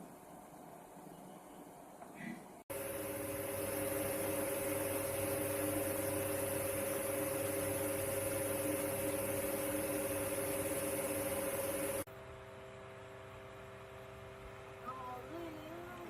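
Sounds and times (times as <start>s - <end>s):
small fan motor humming: 0.0s - 16.0s.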